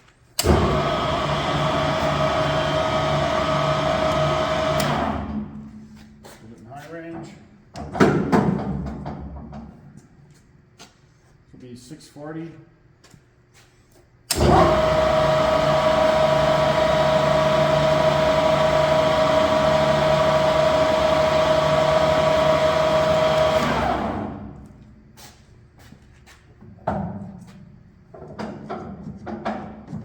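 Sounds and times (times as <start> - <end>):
lathe spindle whining: 0.4 - 5.3, 14.3 - 24.5.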